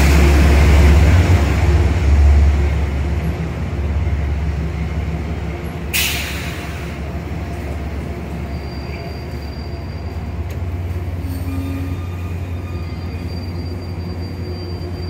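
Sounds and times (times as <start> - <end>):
passenger train rumbling past: 0.0 - 15.0
hiss of air: 5.9 - 7.0.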